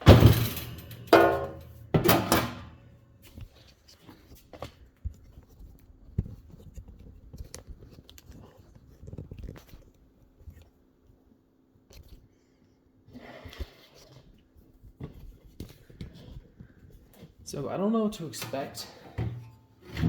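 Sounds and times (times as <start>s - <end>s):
loud metal clang: 0.0s - 2.8s
metal parts clicking and knocking: 0.0s - 2.8s.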